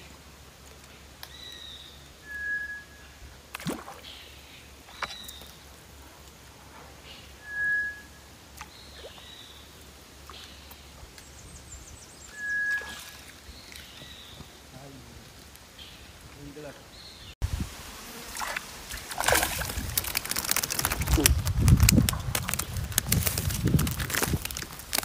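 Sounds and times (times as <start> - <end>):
whistled bird call: 2.2 - 3.2, 7.4 - 8.3, 12.2 - 13.2
faint high calls: 12.2 - 13.3.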